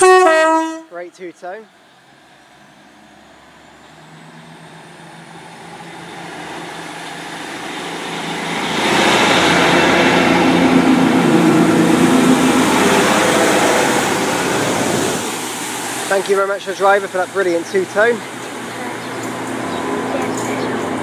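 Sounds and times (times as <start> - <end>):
diesel train engines pulling away: 0.0 - 21.0.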